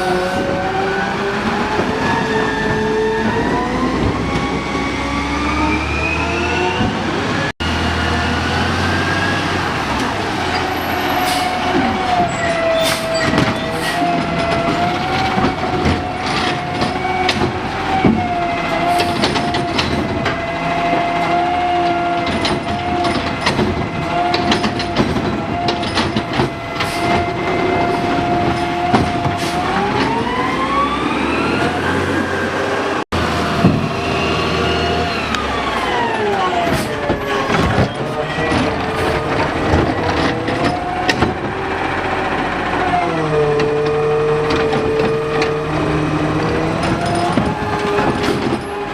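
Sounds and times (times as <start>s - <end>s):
garbage truck mechanical whine: 0.0s - 48.9s
clanks and knocks: 10.0s - 30.4s, 35.3s - 48.9s.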